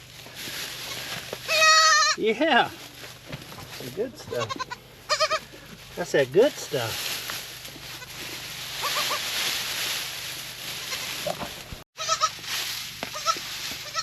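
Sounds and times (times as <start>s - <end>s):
straw rustling: 0.0s - 14.0s
goats bleating: 0.9s - 2.2s, 4.1s - 5.7s, 7.8s - 9.3s, 12.0s - 12.4s, 13.1s - 14.0s.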